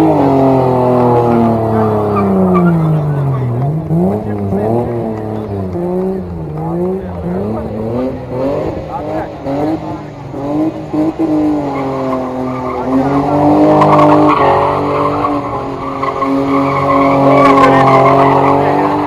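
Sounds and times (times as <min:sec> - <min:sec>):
car engine at high revs: 0:00.0 - 0:19.0
tyres squealing in a skid: 0:01.0 - 0:04.4, 0:09.8 - 0:19.0.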